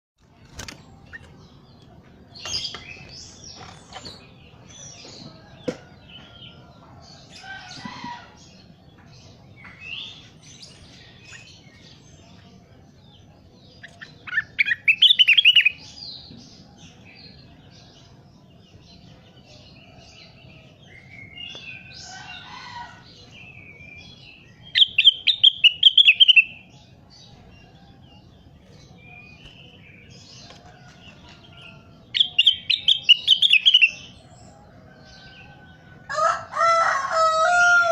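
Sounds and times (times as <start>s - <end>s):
bird chirping and calling: 13.2s - 18.2s, 19.0s - 37.9s.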